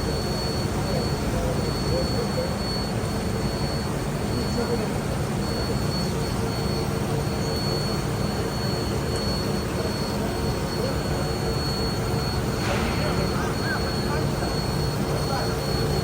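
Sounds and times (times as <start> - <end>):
lathe mechanical hum: 0.0 - 16.0
high whine: 5.4 - 16.0.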